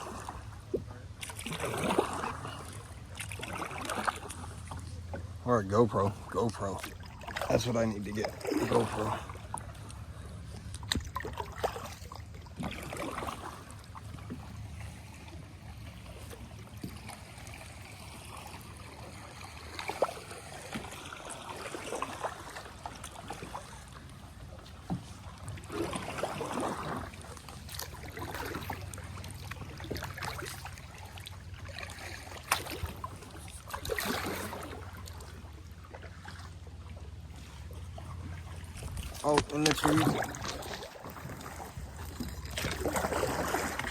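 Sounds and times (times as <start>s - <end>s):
paddle strokes in water: 0.0s - 43.9s
water dripping and trickling: 13.7s - 36.4s.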